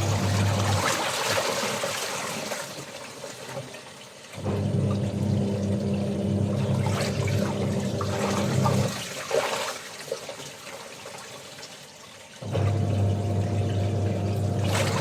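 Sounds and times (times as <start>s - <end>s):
washing machine motor humming: 0.0s - 1.0s, 4.4s - 9.0s, 12.4s - 15.0s
water sloshing and trickling: 0.0s - 15.0s.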